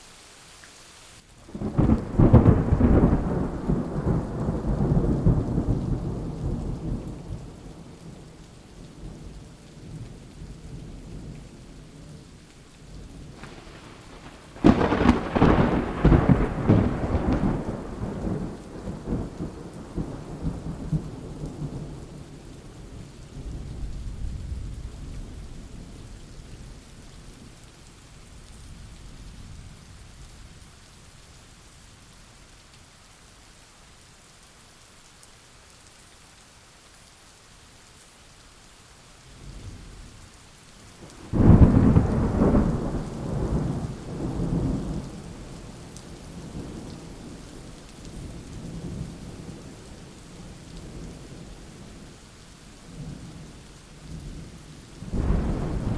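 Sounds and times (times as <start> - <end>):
steady rain: 0.0 - 55.9
thunder rumbling: 1.5 - 8.0, 13.2 - 26.4, 41.0 - 51.9, 54.3 - 55.9
loud thunderclap: 1.6 - 7.0, 13.4 - 20.9, 41.1 - 45.3, 55.0 - 55.9.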